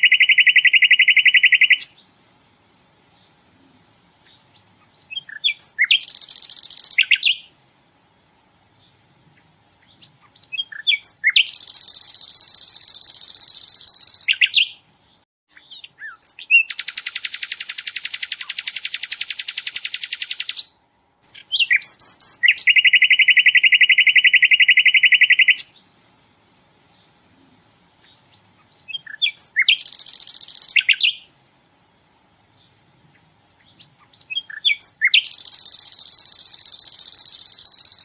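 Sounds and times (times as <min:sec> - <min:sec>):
flycatcher singing fast trills: 0:00.0 - 0:02.0, 0:04.2 - 0:07.6, 0:09.8 - 0:14.8, 0:15.6 - 0:25.8, 0:28.0 - 0:31.4, 0:33.6 - 0:38.0.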